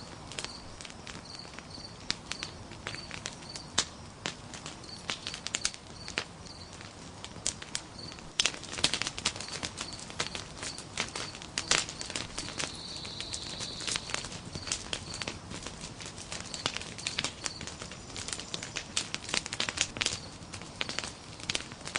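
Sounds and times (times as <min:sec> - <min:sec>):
campfire crackling with pops: 0:00.0 - 0:21.9
faint high chirp: 0:12.0 - 0:14.7.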